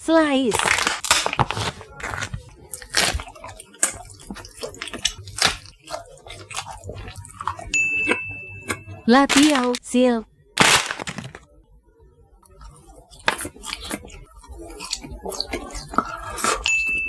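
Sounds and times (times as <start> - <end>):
crunchy snack chewing: 0.5 - 7.7, 10.6 - 11.4, 12.4 - 17.0
steady high tone: 7.7 - 9.3.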